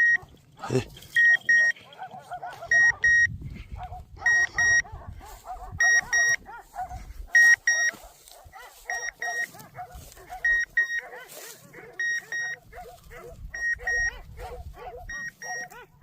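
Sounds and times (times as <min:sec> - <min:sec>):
electronic collar double beeps: 0:00.0 - 0:00.3, 0:01.0 - 0:01.8, 0:02.7 - 0:03.3, 0:04.2 - 0:04.9, 0:05.8 - 0:06.4, 0:07.4 - 0:08.0, 0:08.9 - 0:09.5, 0:10.4 - 0:11.1, 0:12.0 - 0:12.6, 0:13.5 - 0:14.2, 0:15.1 - 0:15.8
dogs barking and yelping: 0:00.0 - 0:16.0.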